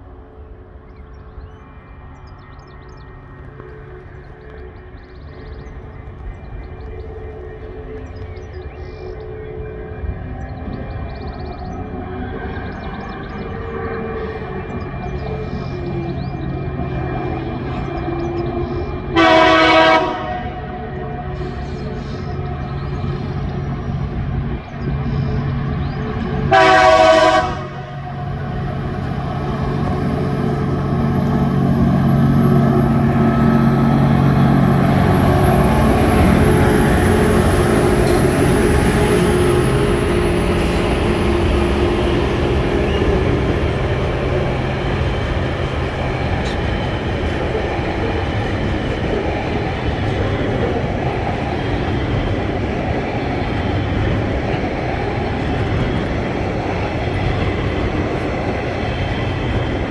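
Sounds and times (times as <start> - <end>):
locomotive engines rumbling: 2.0 - 59.9
locomotive horn blast: 19.0 - 22.2, 26.2 - 46.7.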